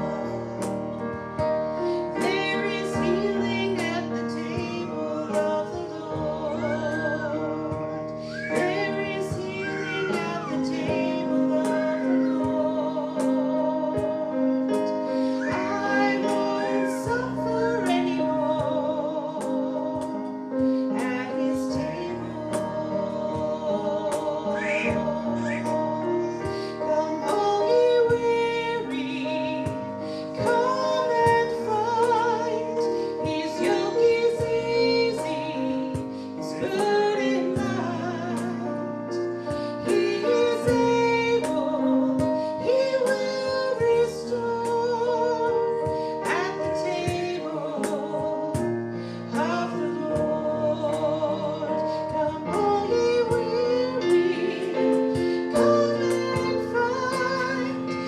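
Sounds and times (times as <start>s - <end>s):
sustained instrumental accompaniment: 0.0s - 58.0s
woman singing with vibrato: 0.0s - 58.0s.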